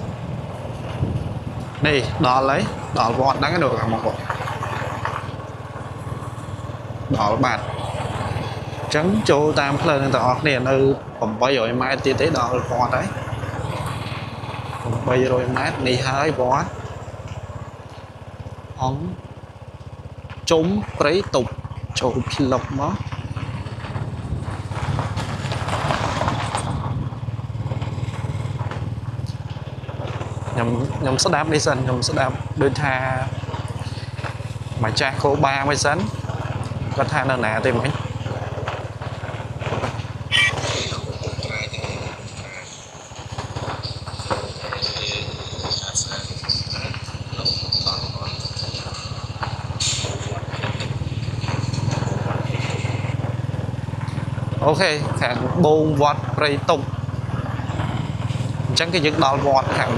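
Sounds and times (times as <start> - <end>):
small engine running: 0.0 - 59.9
light clatter: 11.8 - 55.6.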